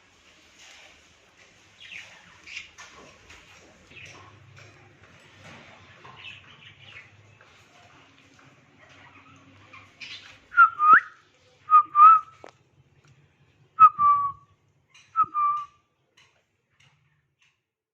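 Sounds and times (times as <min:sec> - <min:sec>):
parrot whistling: 0:10.5 - 0:11.1, 0:11.7 - 0:12.3, 0:13.8 - 0:14.4, 0:15.2 - 0:15.7.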